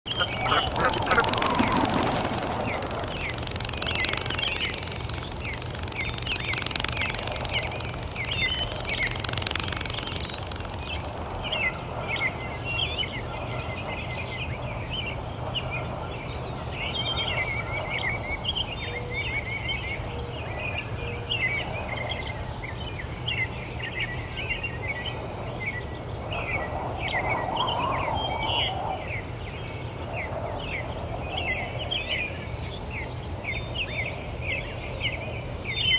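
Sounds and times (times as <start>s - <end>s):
small birds chirping: 0.0s - 13.5s
steady low hum: 0.1s - 12.5s.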